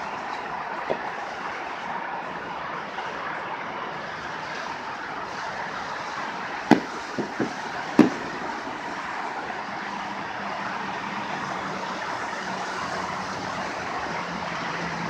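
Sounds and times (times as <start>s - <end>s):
fireworks bangs: 0.0s - 11.6s
steady background noise: 0.0s - 15.0s
fireworks pops: 0.3s - 1.2s, 6.1s - 9.2s.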